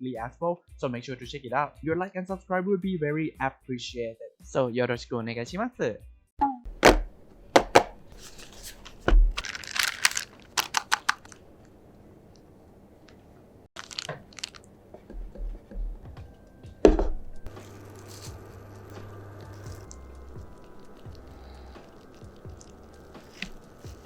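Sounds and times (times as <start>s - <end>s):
packaging crinkling and tearing: 8.1s - 11.5s, 13.8s - 14.7s, 17.5s - 24.0s.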